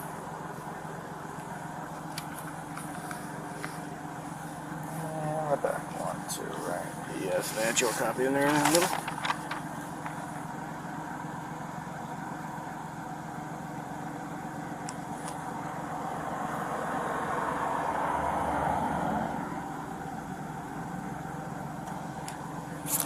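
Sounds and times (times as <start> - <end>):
vehicle engine idling: 0.0 - 23.0
passing vehicle road noise: 15.7 - 19.8.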